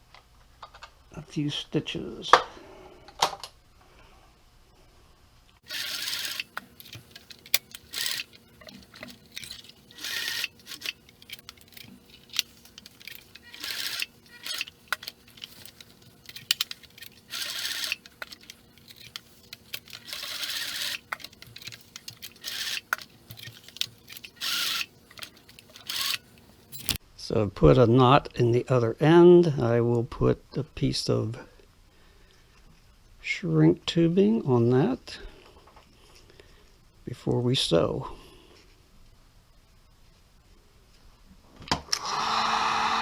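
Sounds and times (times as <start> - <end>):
sewing machine stitching: 5.6 - 27.0.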